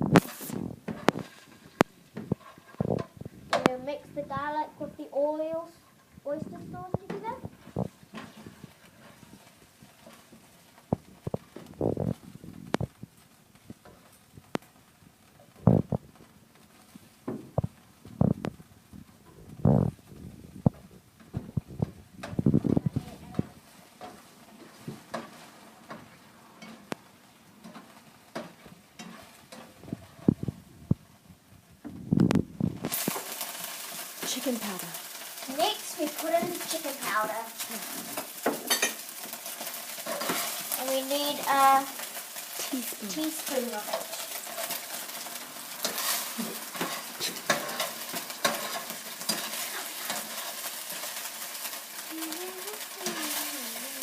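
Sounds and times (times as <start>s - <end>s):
faint sizzle: 0.0s - 54.0s
utensil scraping and knocking pan: 0.1s - 3.8s, 7.0s - 10.5s, 27.6s - 30.6s, 38.0s - 40.8s, 43.9s - 51.2s
utensil tapping a frying pan: 24.0s - 29.8s, 38.1s - 40.8s, 43.9s - 52.1s.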